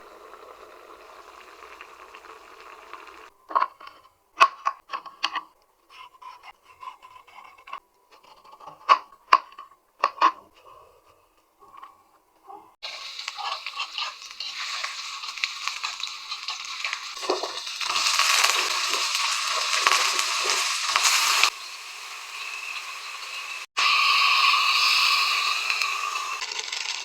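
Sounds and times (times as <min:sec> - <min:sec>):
steady hiss: 0:00.0 - 0:03.3, 0:12.8 - 0:26.7.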